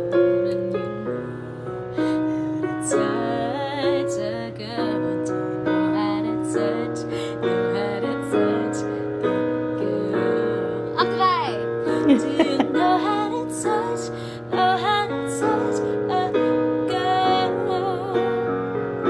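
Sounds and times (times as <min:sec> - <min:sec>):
woman singing vocal run: 0:12.0 - 0:12.7.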